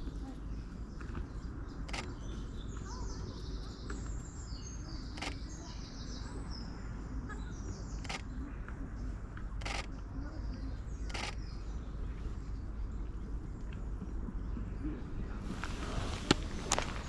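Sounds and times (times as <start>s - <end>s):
steady low rumble: 7.9s - 17.0s
sharp clicks: 11.1s - 11.4s.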